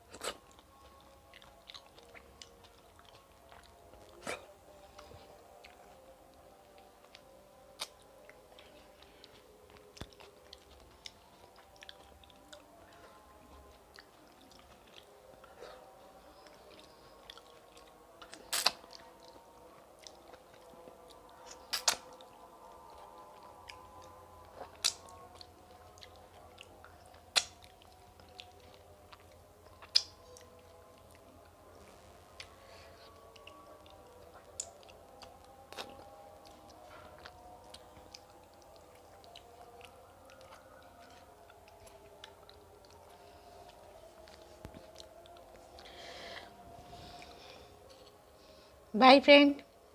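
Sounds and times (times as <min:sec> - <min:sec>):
close chewing mouth sounds: 0:00.0 - 0:48.5
lip smacks: 0:21.2 - 0:22.2, 0:23.7 - 0:26.2, 0:27.0 - 0:30.6, 0:32.4 - 0:46.2.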